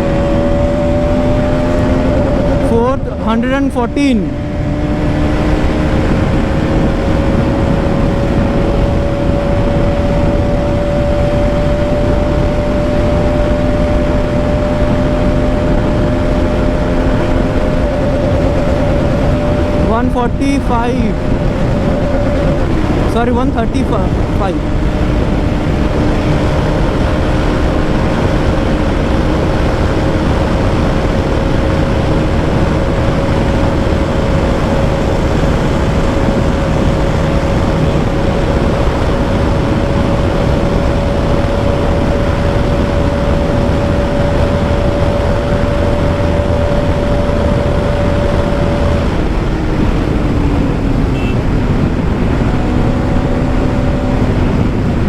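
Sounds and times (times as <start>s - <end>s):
loud wind rush: 0.0s - 55.0s
motorcycle engine at high speed: 0.0s - 55.0s
road noise: 0.0s - 55.0s.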